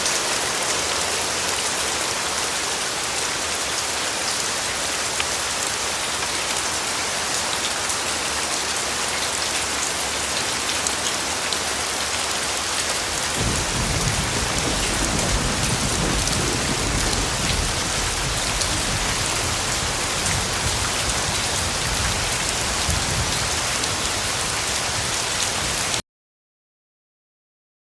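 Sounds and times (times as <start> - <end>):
steady rain falling: 0.0 - 26.0
rolling thunder rumble: 13.4 - 23.6.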